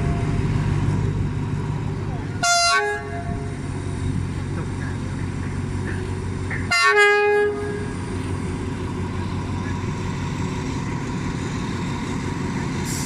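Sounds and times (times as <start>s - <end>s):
train rumbling: 0.0s - 13.0s
train horn blast: 2.4s - 3.6s, 6.5s - 8.0s.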